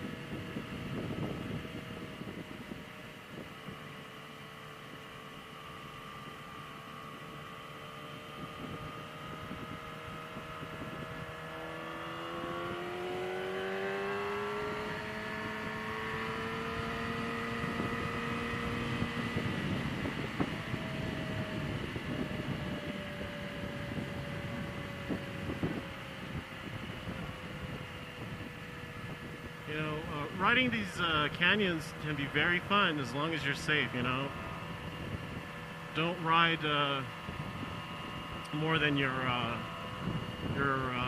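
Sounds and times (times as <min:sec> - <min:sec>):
wind rush: 0:00.0 - 0:03.6, 0:17.5 - 0:35.6, 0:39.5 - 0:41.0
motorcycle engine accelerating: 0:00.0 - 0:41.0.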